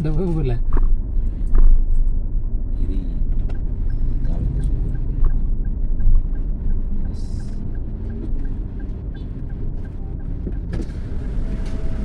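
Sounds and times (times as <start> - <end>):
vehicle rumble from inside: 0.0 - 12.0.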